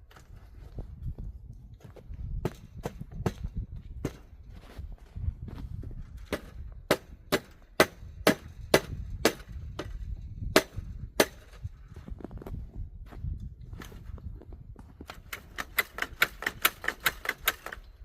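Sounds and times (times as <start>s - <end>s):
footsteps crunching through snow: 4.3s - 6.2s.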